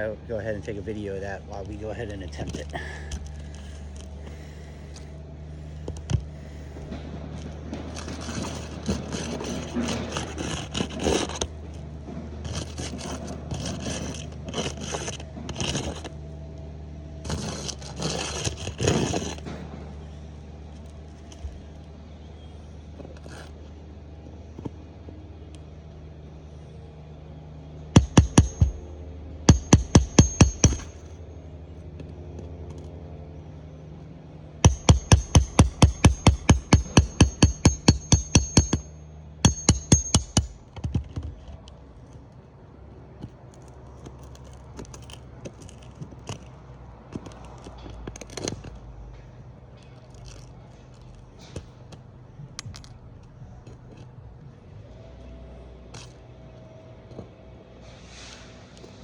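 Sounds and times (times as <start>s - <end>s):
steady low hum: 0.0s - 22.8s, 25.8s - 32.2s, 32.8s - 43.0s
hammer driving nails: 28.0s - 28.8s, 29.4s - 31.0s, 34.6s - 41.4s
light clicks and handling noise: 40.7s - 57.4s.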